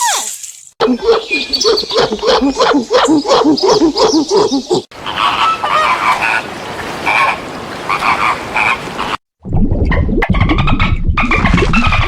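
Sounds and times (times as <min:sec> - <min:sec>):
animal calls: 0:00.8 - 0:09.2.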